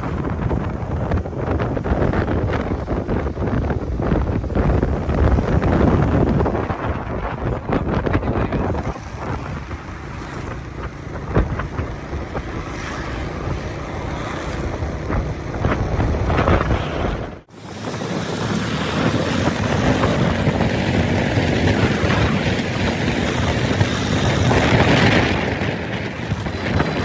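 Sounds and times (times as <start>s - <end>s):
motorcycle engine: 0.0s - 27.0s
wind buffeting microphone: 0.0s - 27.0s.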